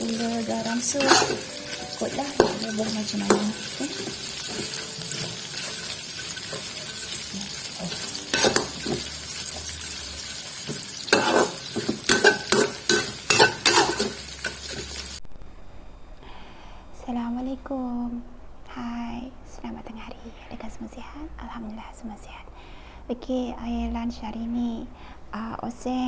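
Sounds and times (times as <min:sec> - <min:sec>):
food sizzling in a pan: 0:00.0 - 0:15.2
metal spatula scraping pan: 0:00.0 - 0:15.2.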